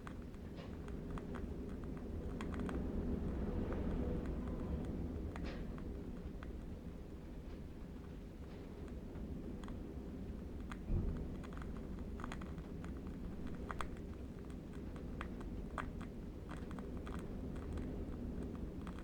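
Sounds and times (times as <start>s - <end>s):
low wind rumble: 0.0s - 19.0s
candle wick crackling: 13.2s - 16.6s.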